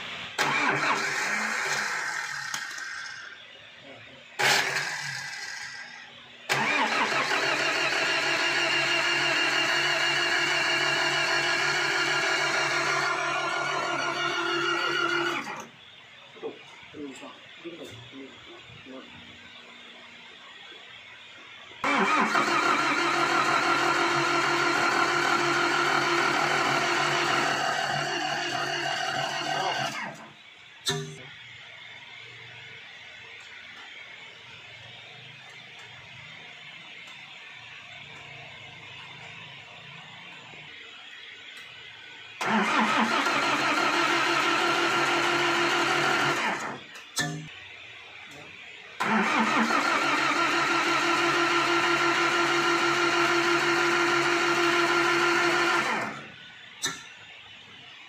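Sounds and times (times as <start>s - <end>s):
engine running: 0.0s - 5.9s, 6.5s - 15.7s, 21.3s - 31.3s, 42.4s - 47.4s, 49.0s - 57.0s.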